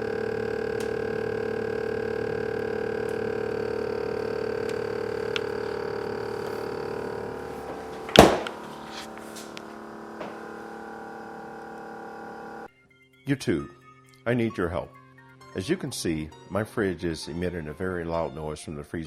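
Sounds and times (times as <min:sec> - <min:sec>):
freezer fan humming: 0:00.0 - 0:12.7
sharp thump: 0:08.0 - 0:08.7.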